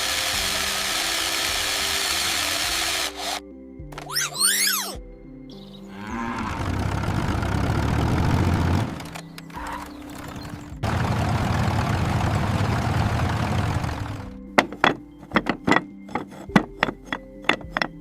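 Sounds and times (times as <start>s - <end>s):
cartoon engine sound effect: 4.1s - 5.0s.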